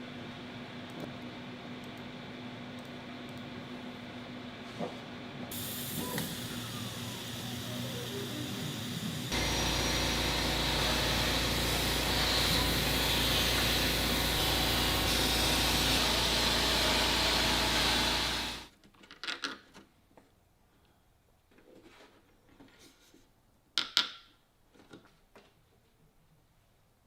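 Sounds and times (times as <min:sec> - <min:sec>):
power tool running: 0:05.5 - 0:18.7.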